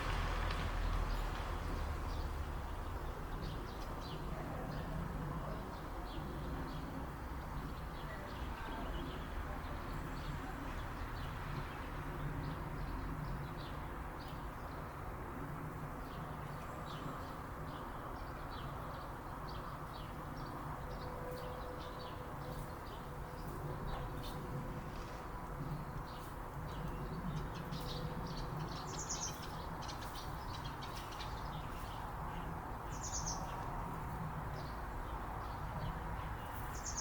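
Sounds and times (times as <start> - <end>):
small birds chirping: 25.7 - 37.0.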